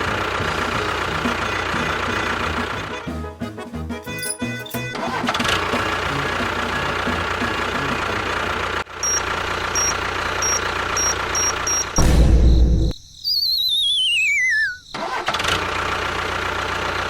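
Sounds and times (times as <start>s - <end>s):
engine running: 0.0s - 3.2s, 4.2s - 12.2s, 15.0s - 17.0s
short high beeps: 9.0s - 9.2s, 9.8s - 12.0s.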